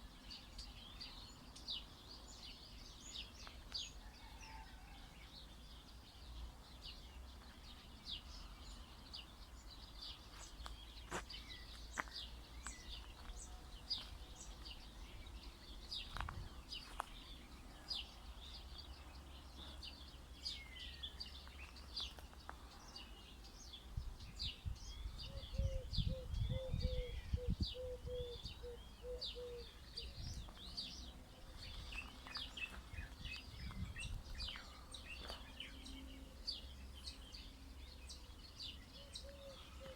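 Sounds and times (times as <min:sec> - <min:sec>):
small songbirds chirping: 0:00.0 - 0:39.9
lower repeated bird call: 0:25.3 - 0:30.2.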